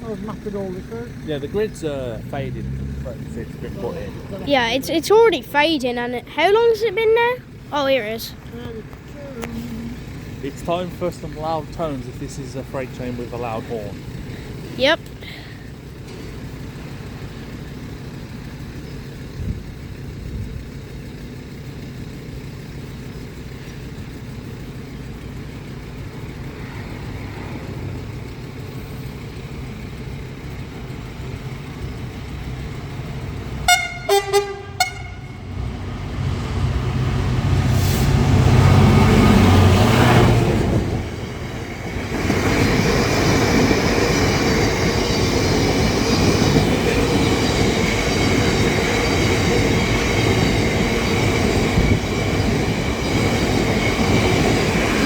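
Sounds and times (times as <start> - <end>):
train rumbling past: 0.0 - 9.0, 9.6 - 55.0
train horn blasts: 33.6 - 35.6.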